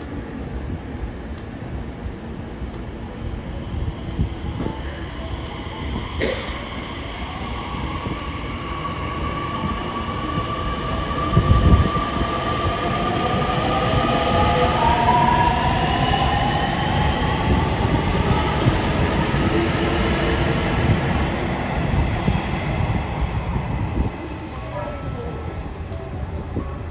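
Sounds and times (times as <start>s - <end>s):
wheel and rail rumble: 0.0s - 26.9s
electric train motor whine: 6.8s - 26.9s.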